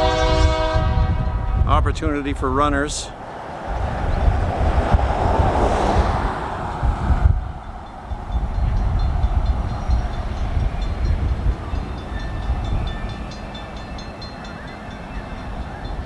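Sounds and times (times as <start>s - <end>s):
freight train rumbling: 0.0s - 16.0s
crossing bell ringing: 7.6s - 16.0s.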